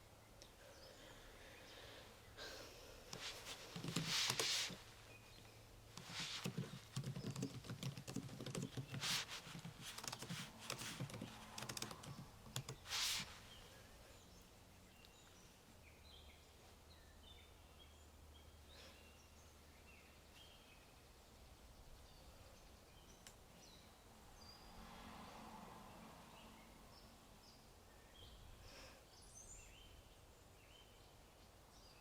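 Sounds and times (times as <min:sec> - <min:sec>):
typing on a keyboard: 0:03.1 - 0:04.8, 0:06.0 - 0:12.9.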